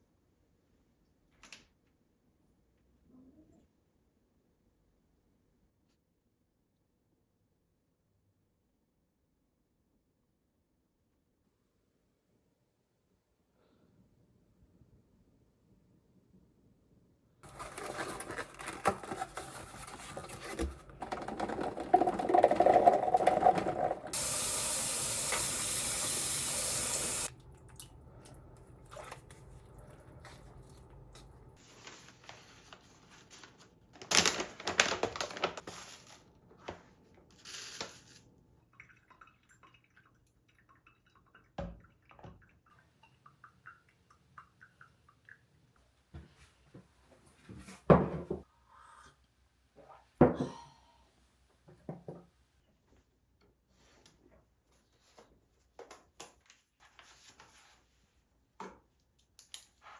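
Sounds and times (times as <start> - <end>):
tap water running into sink: 21.1 - 27.9.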